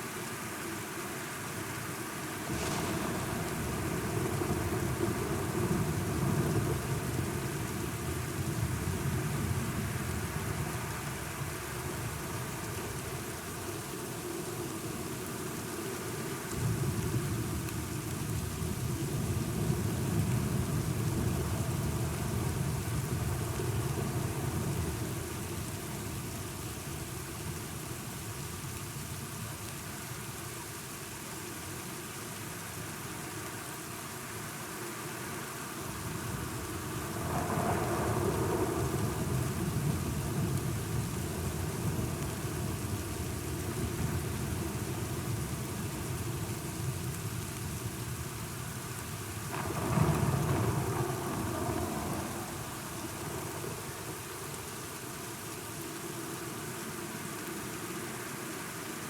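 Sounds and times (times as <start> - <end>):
steady rain falling: 0.0 - 59.0
thunder rumbling: 2.4 - 9.7, 36.0 - 46.3, 49.4 - 54.6.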